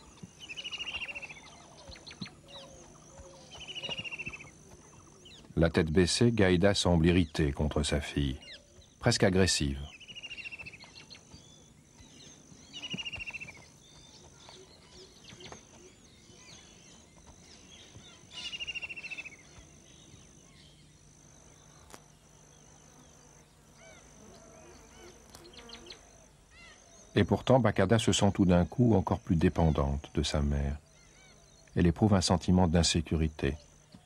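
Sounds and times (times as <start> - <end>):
soft bird chirps: 0.0 - 23.0
high insect buzz: 0.0 - 27.2.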